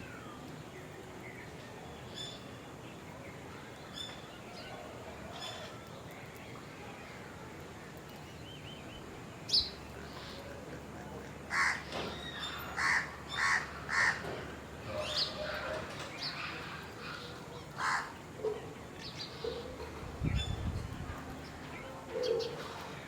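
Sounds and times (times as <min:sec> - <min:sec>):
birds chirping: 0:00.0 - 0:23.0
crow cawing: 0:11.5 - 0:11.9, 0:12.8 - 0:14.3, 0:17.8 - 0:18.2.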